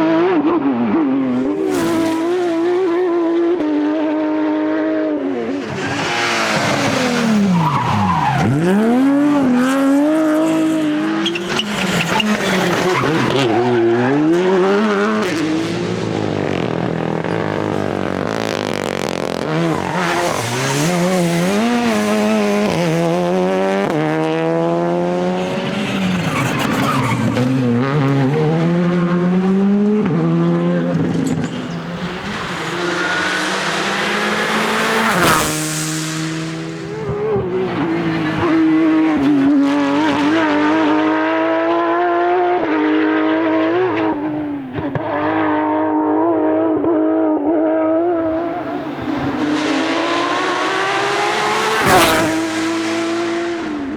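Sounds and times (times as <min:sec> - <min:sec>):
rally car engines revving: 0:00.0 - 0:53.9
tyre noise: 0:05.4 - 0:40.4, 0:48.2 - 0:53.9.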